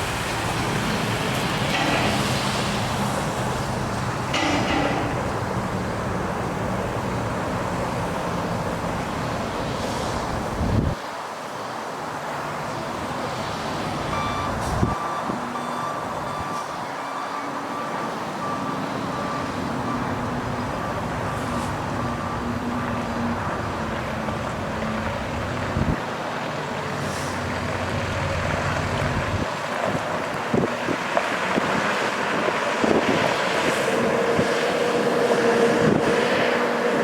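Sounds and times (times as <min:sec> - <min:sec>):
backup alarm beeping: 0:14.1 - 0:22.9
truck engine running: 0:17.7 - 0:37.0.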